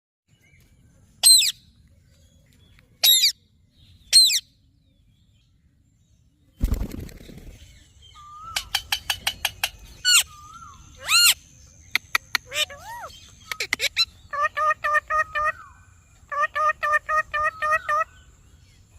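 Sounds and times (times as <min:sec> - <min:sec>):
wing flutter: 0:06.6 - 0:07.8
parrot shrill calls: 0:11.0 - 0:11.4, 0:12.4 - 0:15.7.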